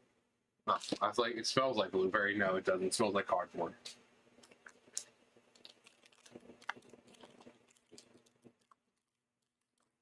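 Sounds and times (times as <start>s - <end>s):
snack package rustling: 4.4s - 10.0s.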